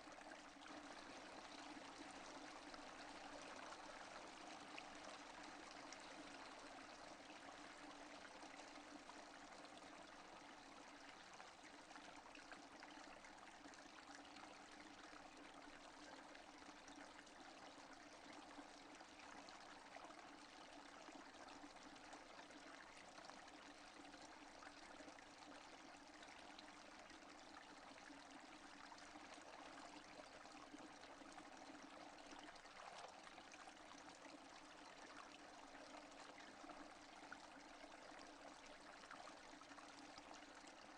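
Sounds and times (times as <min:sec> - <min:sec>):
faint steady rainfall: 0:00.0 - 0:11.4.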